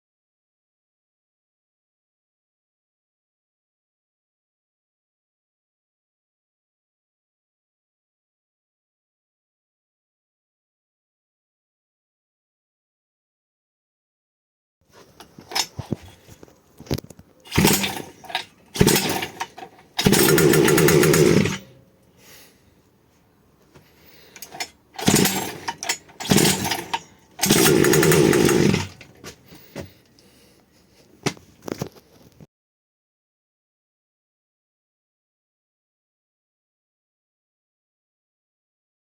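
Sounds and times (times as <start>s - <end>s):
small two-stroke engine starting: 15.3s - 22.4s, 24.4s - 29.2s.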